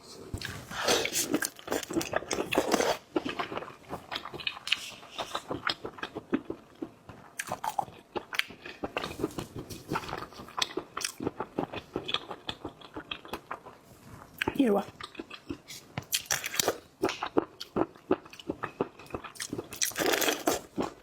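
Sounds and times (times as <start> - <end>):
chewing and crunching food: 0.4 - 21.0.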